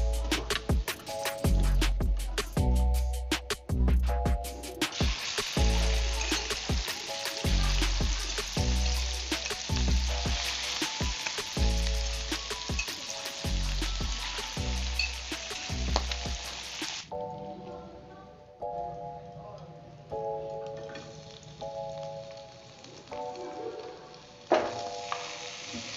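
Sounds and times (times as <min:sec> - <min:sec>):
background music with steady beat: 0:00.0 - 0:25.9
squid sizzling with crackling pops: 0:04.8 - 0:17.2, 0:20.7 - 0:25.9.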